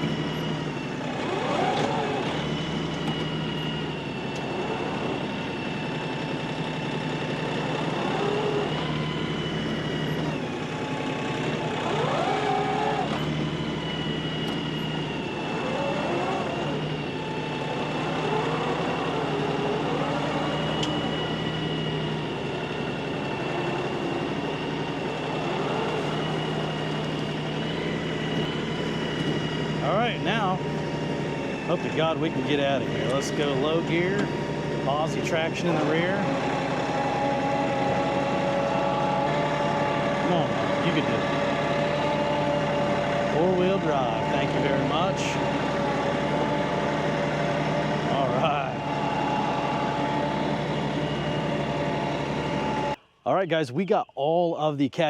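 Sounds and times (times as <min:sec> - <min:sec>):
tractor diesel engine running: 0:00.0 - 0:55.0
high whine: 0:12.0 - 0:54.2.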